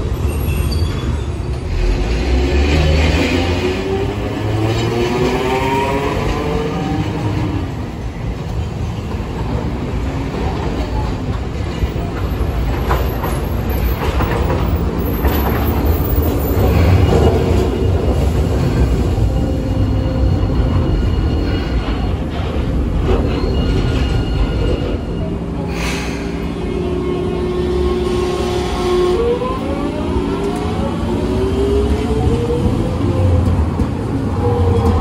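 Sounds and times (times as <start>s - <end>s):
tram wheels rumbling on rail: 0.0s - 35.0s
faint high wheel squeal: 0.1s - 1.7s
clacks over rail joints: 8.5s - 19.1s.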